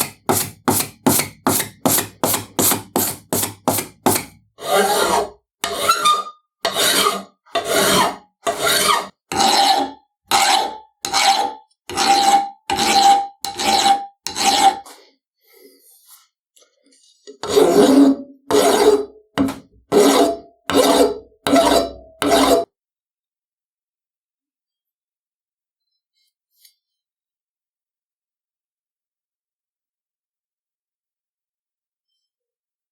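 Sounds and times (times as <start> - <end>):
hand file rasping: 0.0 - 15.0, 17.4 - 22.7.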